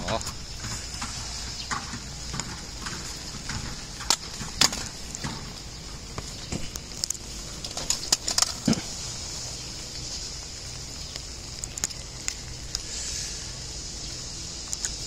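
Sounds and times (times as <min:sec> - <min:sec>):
rain on plastic umbrella: 0:00.0 - 0:15.0.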